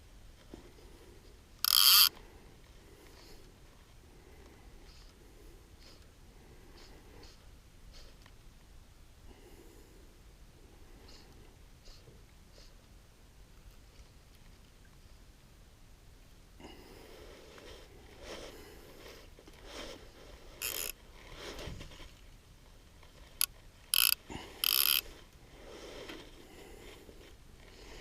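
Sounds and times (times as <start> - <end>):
fly reel ratchet clicking: 1.6 - 2.1, 20.6 - 20.9, 23.9 - 25.0.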